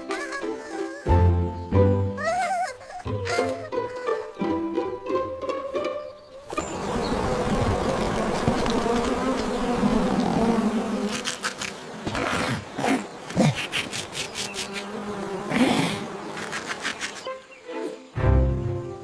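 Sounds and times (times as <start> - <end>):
cartoon insect buzzing: 6.6 - 17.3.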